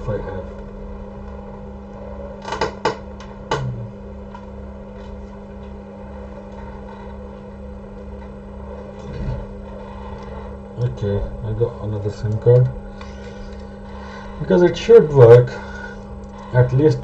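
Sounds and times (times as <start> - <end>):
steady hum with low pulsing: 0.0 - 17.0.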